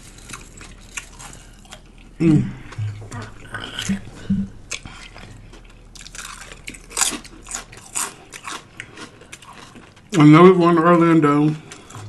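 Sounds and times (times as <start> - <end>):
crisp crunches of chewing sandwich: 0.0 - 2.2, 4.8 - 10.2.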